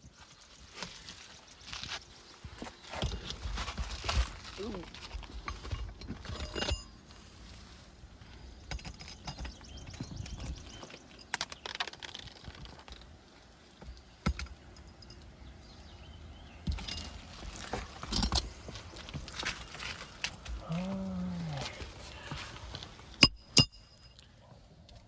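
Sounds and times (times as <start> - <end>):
small metallic rattles: 4.9 - 7.2, 8.2 - 20.8.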